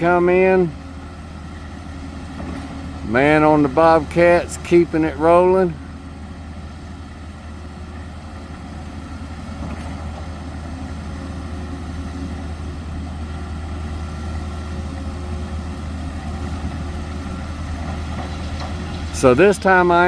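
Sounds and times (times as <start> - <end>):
heavy diesel machinery droning: 0.0 - 20.0.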